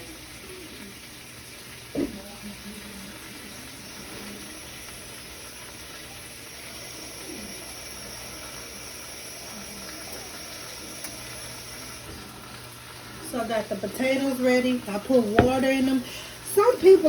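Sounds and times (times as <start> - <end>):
food sizzling on stovetop: 0.0 - 17.0
kitchenware clinking: 15.4 - 16.0.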